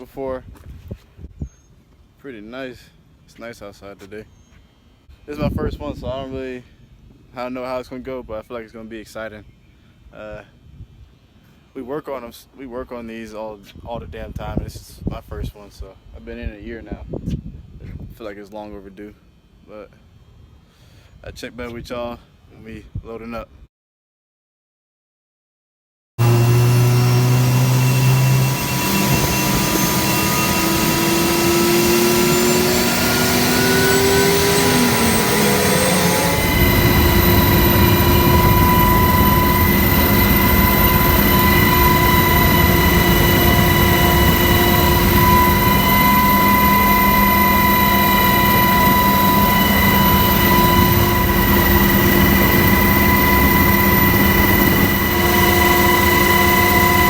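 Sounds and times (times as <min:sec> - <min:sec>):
helicopter turbine and rotor: 0:26.2 - 0:57.0.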